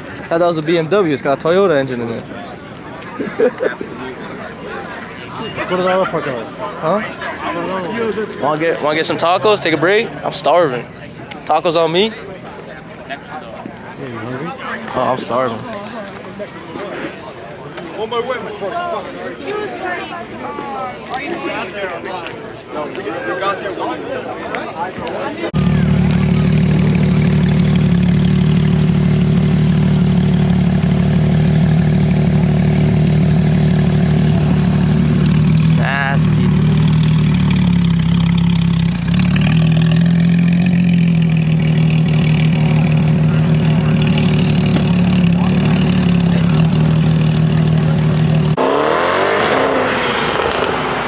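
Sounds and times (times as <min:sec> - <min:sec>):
car engine idling: 0:25.6 - 0:48.6
engine revving: 0:25.6 - 0:51.0.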